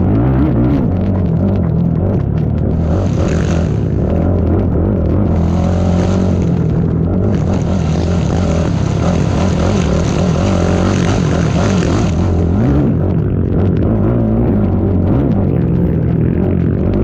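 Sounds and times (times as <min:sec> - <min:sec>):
atv engine revving: 0:00.0 - 0:17.0.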